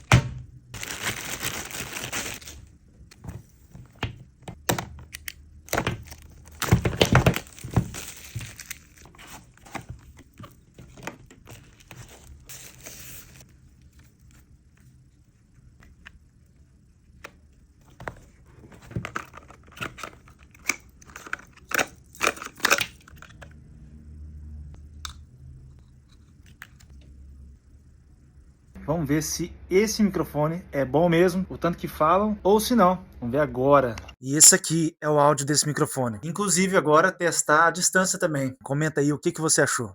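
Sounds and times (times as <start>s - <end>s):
low room hum: 0.0s - 39.9s
plastic crinkling and tearing: 0.8s - 2.7s, 5.7s - 9.8s.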